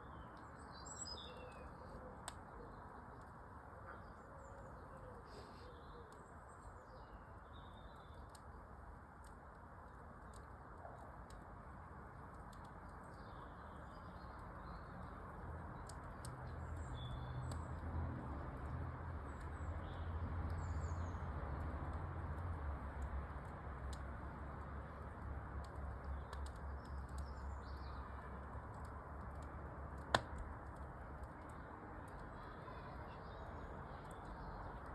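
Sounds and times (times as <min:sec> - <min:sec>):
small birds chirping: 0:00.0 - 0:08.7, 0:12.4 - 0:17.9, 0:18.6 - 0:21.8, 0:24.8 - 0:34.9
fire crackling in fireplace: 0:00.1 - 0:34.9.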